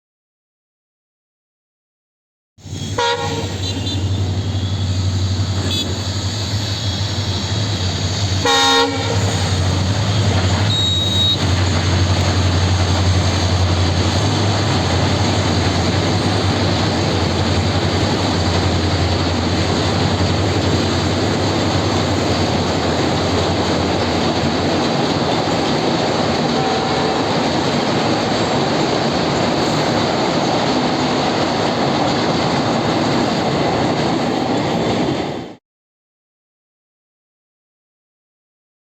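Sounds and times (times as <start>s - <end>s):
train rumbling over bridge: 2.6s - 35.6s
train horn blasts: 2.8s - 6.1s, 8.4s - 9.7s, 10.6s - 11.6s, 26.5s - 27.4s.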